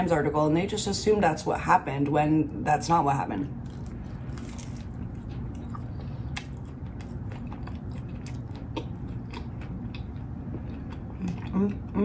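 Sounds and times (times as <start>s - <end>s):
chewing with crunches: 3.6s - 12.0s.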